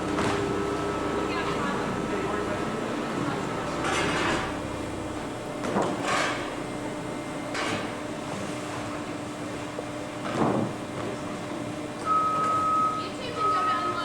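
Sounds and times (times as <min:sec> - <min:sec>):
machine hum: 0:00.0 - 0:08.2.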